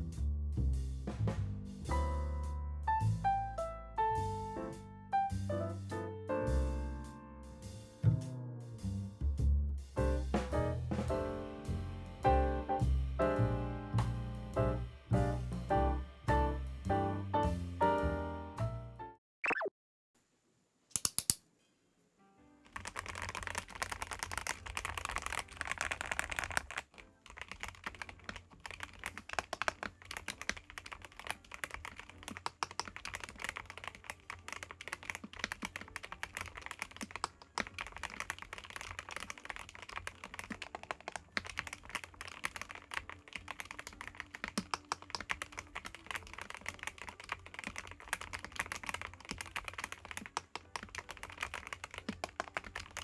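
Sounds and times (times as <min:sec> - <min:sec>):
fast typing on mechanical keyboard: 0:22.7 - 0:53.0.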